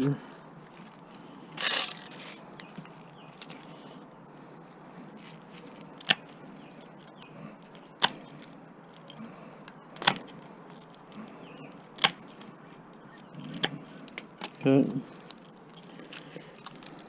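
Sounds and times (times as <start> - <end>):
handling noise: 0.3 - 17.0.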